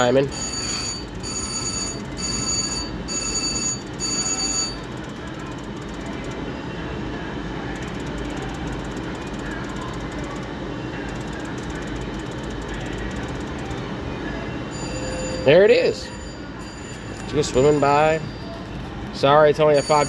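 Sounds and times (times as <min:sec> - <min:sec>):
slot machine bell ringing: 0:00.0 - 0:06.3, 0:14.6 - 0:20.0
chatter: 0:00.0 - 0:20.0
machine jingles: 0:14.7 - 0:20.0.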